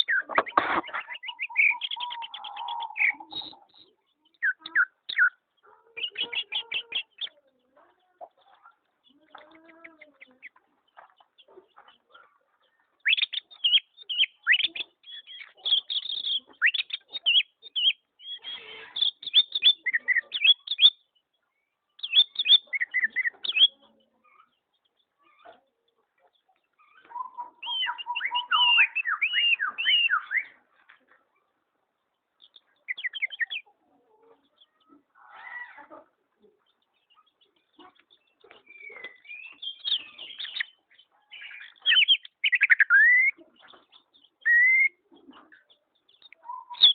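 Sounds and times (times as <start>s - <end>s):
songbirds chirping and singing: 0.0s - 46.9s.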